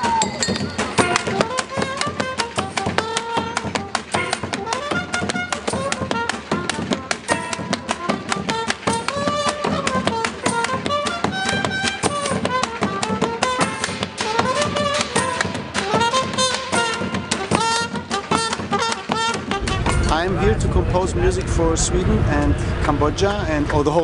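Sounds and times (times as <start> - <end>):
fast percussion hits: 0.0 - 24.0
gliding pitched melody: 19.5 - 23.4.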